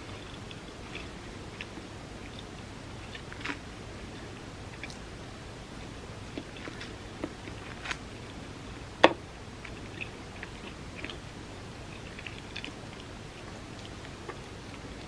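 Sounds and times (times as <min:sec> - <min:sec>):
person chewing food: 0:00.0 - 0:15.0
wet mouth clicks: 0:04.7 - 0:05.0.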